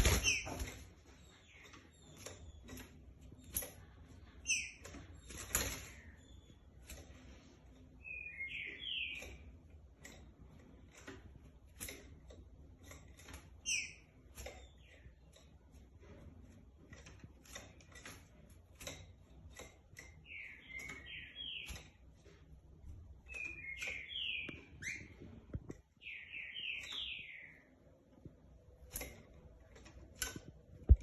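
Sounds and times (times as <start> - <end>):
bird wing flutters: 0.0 - 0.9
clicks and taps on cage bars: 9.1 - 26.0, 27.9 - 31.0.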